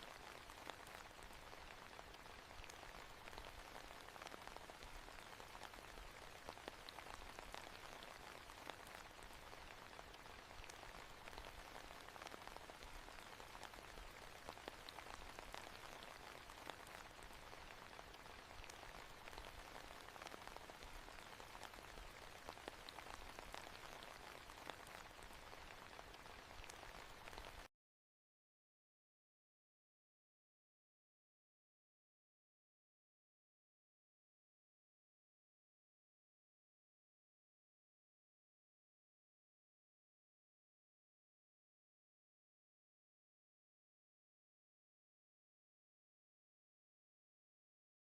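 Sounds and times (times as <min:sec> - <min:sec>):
soft rain on a hard surface: 0:00.0 - 0:27.7.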